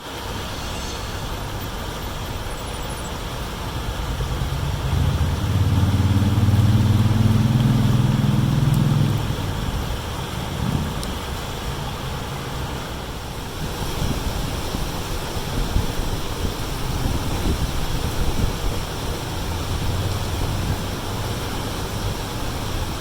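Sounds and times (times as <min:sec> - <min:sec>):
engine low hum: 0:00.0 - 0:13.5, 0:18.1 - 0:23.0
creek water rushing: 0:00.0 - 0:23.0.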